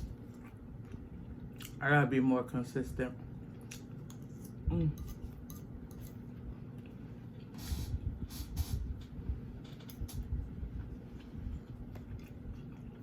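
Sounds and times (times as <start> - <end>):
steady low hum: 0.0 - 13.0
chewing crunchy fried chicken: 10.8 - 13.0.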